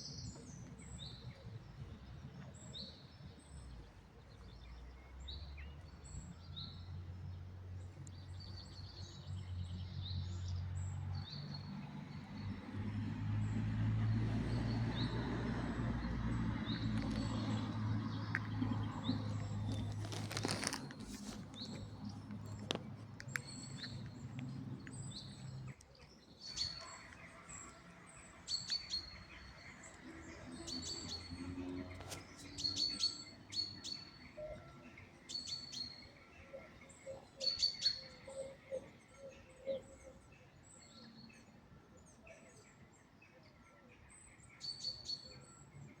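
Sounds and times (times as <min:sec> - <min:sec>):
small birds chirping: 0:16.0 - 0:43.1
sharp crackle: 0:19.4 - 0:21.9.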